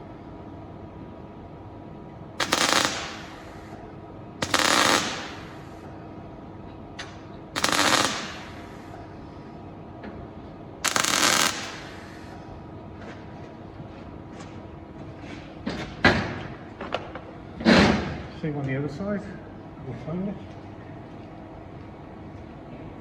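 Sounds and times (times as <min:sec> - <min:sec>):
welder crackling bursts: 0:02.4 - 0:03.7, 0:04.4 - 0:05.8, 0:07.6 - 0:08.9, 0:10.8 - 0:12.2.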